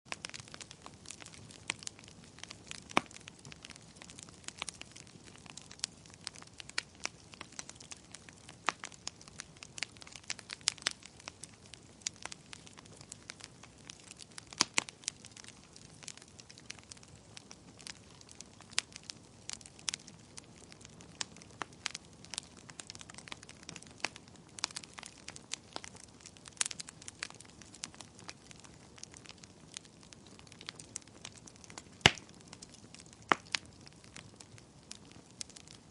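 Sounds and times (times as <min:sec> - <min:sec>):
sharp pops and snaps: 0:00.1 - 0:15.5, 0:21.6 - 0:34.4
wood fire crackling: 0:00.1 - 0:35.9.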